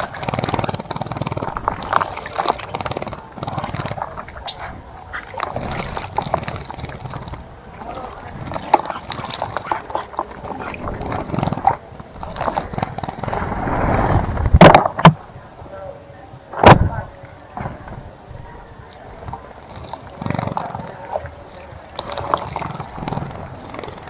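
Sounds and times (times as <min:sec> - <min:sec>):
birds splashing in water: 0:00.0 - 0:14.6
bird calls: 0:01.4 - 0:13.4.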